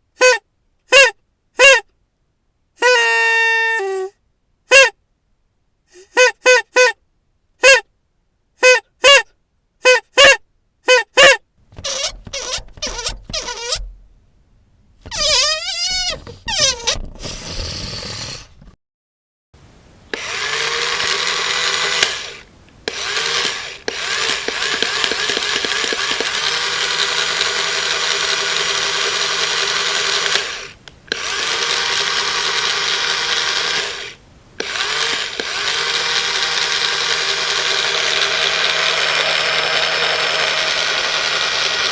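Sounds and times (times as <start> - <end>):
small electric motor running: 11.8 - 13.9, 15.1 - 18.6, 20.2 - 41.9.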